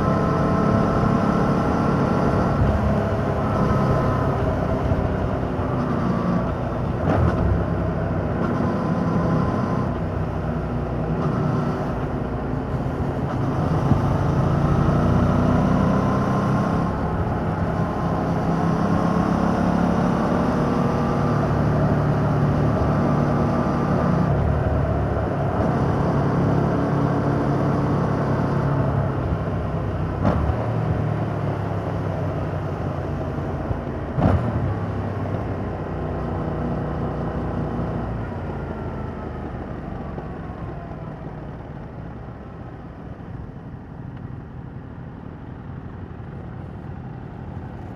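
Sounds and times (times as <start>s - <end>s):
motorcycle engine revving: 0.0s - 35.6s
wind and road noise: 0.0s - 47.9s.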